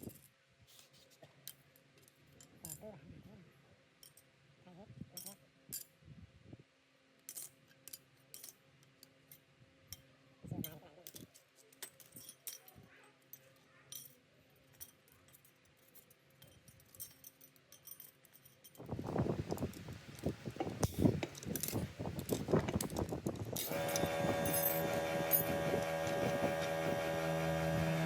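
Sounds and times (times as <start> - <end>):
small metal parts clinking: 1.4 - 2.9, 4.0 - 4.3, 5.2 - 5.9, 7.2 - 27.0.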